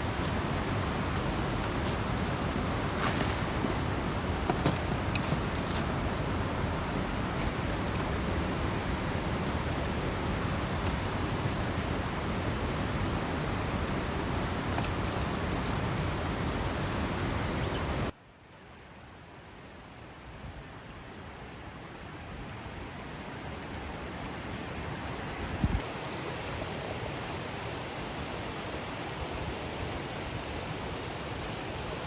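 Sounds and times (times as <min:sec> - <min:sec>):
campfire crackling and popping: 0:00.0 - 0:16.8
steady rushing noise: 0:00.0 - 0:18.1.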